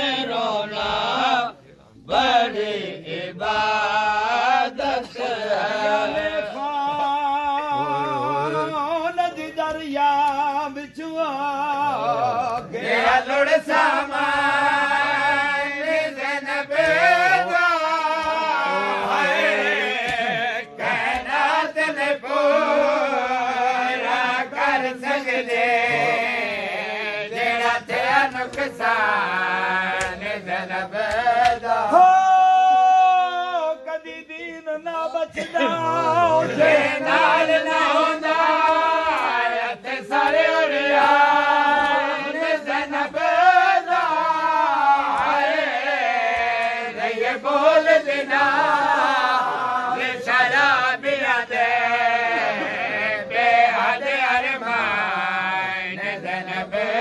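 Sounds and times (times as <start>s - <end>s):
man chanting a lament: 0.0s - 13.0s, 13.6s - 24.0s, 24.6s - 27.2s, 31.2s - 39.4s
sharp slaps: 20.0s - 21.4s, 29.9s - 30.4s, 31.0s - 31.8s, 46.2s - 46.8s.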